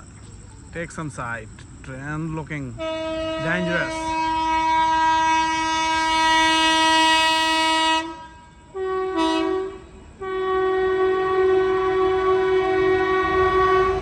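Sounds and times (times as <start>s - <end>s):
train horn blasts: 2.8s - 14.0s.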